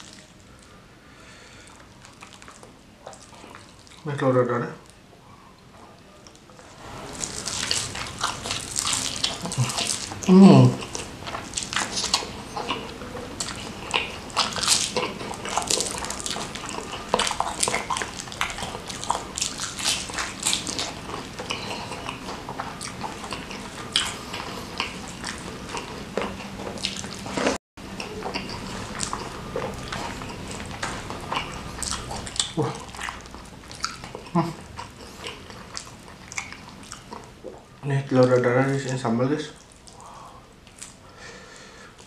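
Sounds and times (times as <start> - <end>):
chewing crispy food: 0.0 - 0.8, 1.6 - 4.1, 5.6 - 42.0
wet mouth sounds: 7.0 - 37.7.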